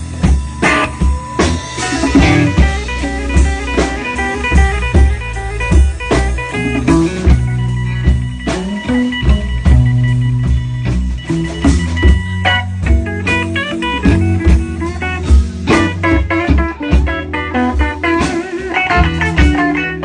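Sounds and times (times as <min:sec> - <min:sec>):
bass: 0:00.0 - 0:20.0
drum kit beat: 0:00.0 - 0:20.0
guitar: 0:00.0 - 0:20.0.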